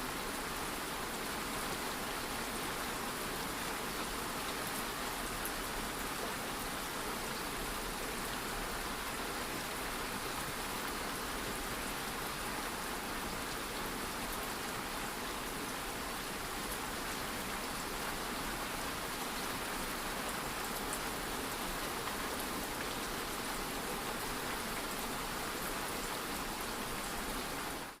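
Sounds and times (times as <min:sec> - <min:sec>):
light rain falling: 0:00.0 - 0:28.0.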